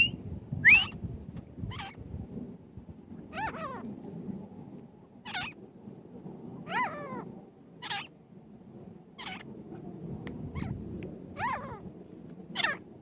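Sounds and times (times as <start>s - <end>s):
francolin calling: 9.2s - 9.5s.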